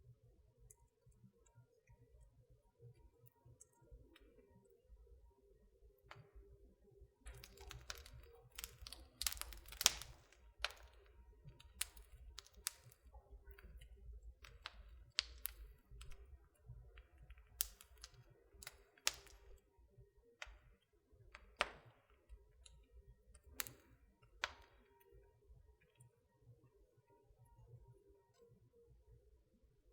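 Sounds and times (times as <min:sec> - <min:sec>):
wood fire crackling: 0:07.2 - 0:19.8, 0:20.4 - 0:25.2.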